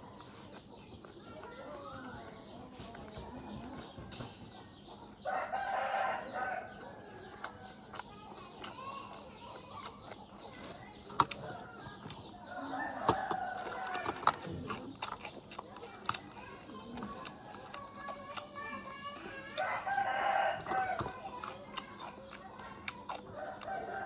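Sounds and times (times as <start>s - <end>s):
rooster crowing: 5.2s - 6.8s, 12.5s - 14.1s, 19.6s - 21.1s.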